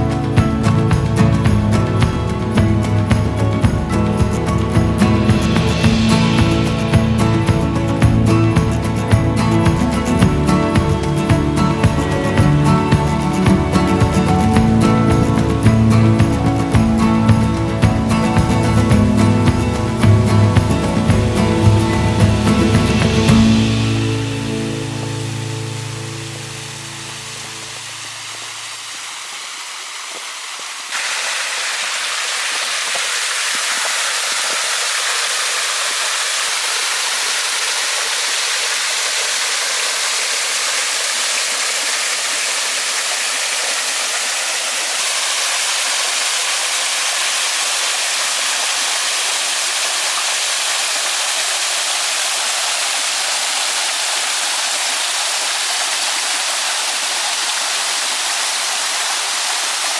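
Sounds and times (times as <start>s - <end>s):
music: 0.0s - 28.4s
steady rushing hiss: 0.0s - 59.9s.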